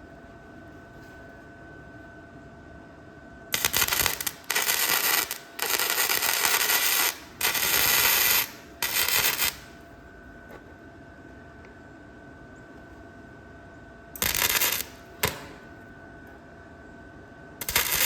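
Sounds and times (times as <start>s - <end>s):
welding arc crackling: 3.5s - 9.8s, 14.2s - 15.6s, 17.6s - 18.0s.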